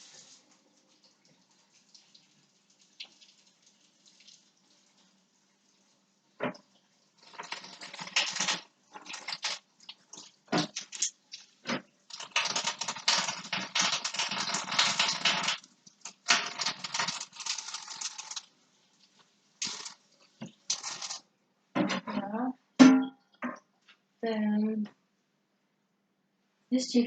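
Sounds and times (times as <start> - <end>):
hands washing chicken in sink: 0.0 - 21.2
wet rubbing and splashing: 7.2 - 21.2.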